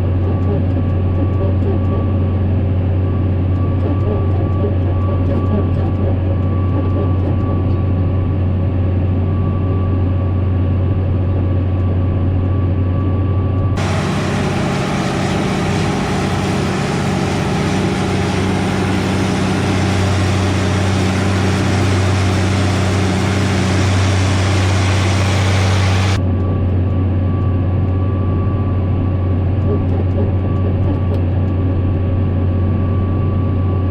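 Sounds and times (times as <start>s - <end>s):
harsh hissing engine noise: 13.8s - 26.2s
tractor engine droning: 13.8s - 26.2s.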